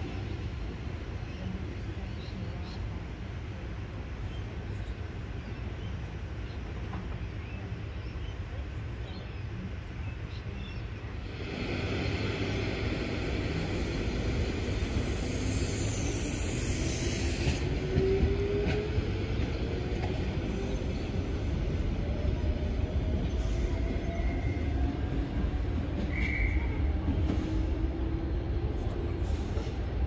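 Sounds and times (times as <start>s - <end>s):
train wheels rumbling: 11.0s - 30.0s
high hiss: 11.2s - 17.8s.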